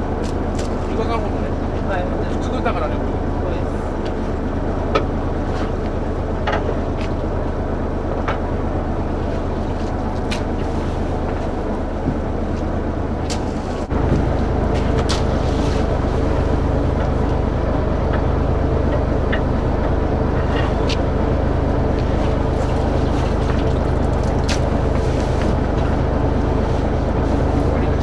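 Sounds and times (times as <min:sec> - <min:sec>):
boat engine drone: 0:00.0 - 0:28.0.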